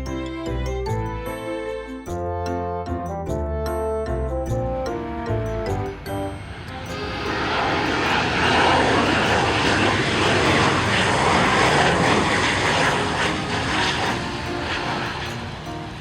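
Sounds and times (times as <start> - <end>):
airplane engine noise: 3.7 - 16.0.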